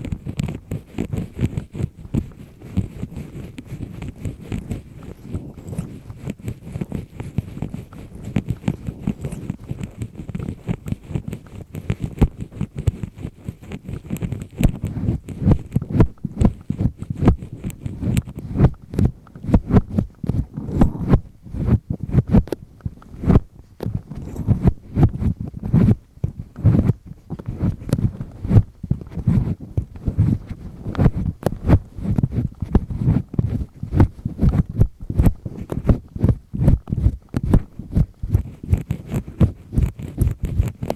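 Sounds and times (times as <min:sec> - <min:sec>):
ear pick scraping: 0:00.0 - 0:40.9.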